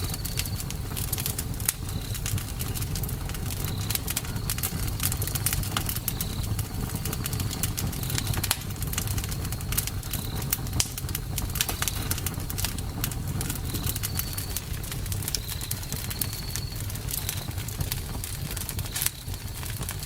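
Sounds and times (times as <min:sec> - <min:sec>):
campfire rumble: 0:00.0 - 0:20.0
wood crackling and popping: 0:00.0 - 0:20.0
faint high chirps: 0:13.5 - 0:14.7.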